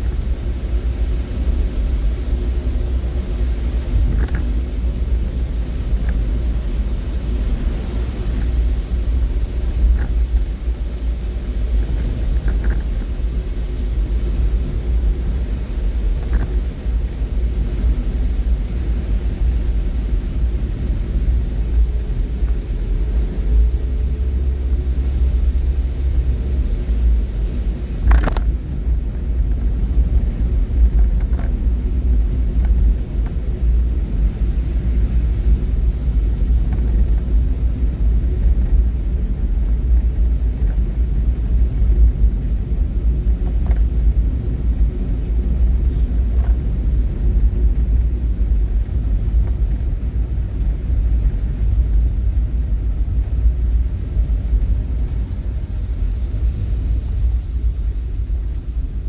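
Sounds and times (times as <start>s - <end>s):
vehicle low rumble: 0.0s - 59.0s.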